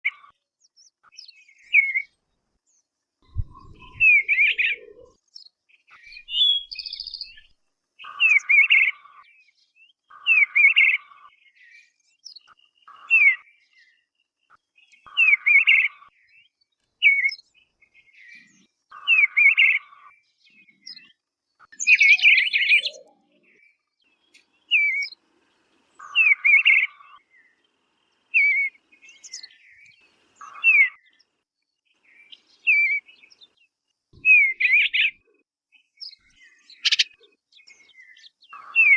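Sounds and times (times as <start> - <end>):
bird singing whistled phrases: 3.3 - 5.1, 6.1 - 7.4, 21.8 - 23.1, 28.4 - 31.0, 34.2 - 35.1.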